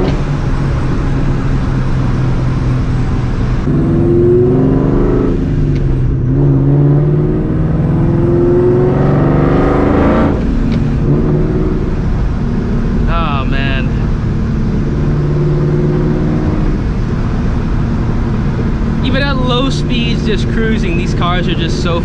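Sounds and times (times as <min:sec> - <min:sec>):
car engine accelerating through gears: 0:00.0 - 0:22.0.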